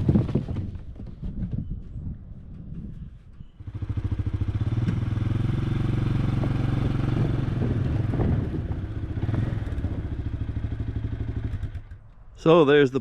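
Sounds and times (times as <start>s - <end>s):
atv engine running: 2.6s - 12.3s.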